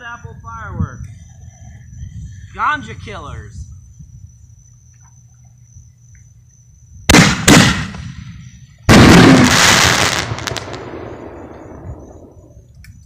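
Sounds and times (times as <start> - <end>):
firework hiss: 7.1 - 12.5
firework bangs: 7.1 - 12.6.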